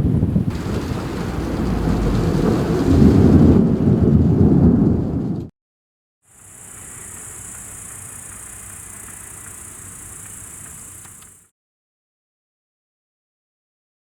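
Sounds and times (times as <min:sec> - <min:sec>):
rumbling thunder: 0:00.0 - 0:05.5
rain: 0:00.4 - 0:05.4, 0:06.4 - 0:11.5
high-pitched insect chorus: 0:06.3 - 0:11.5.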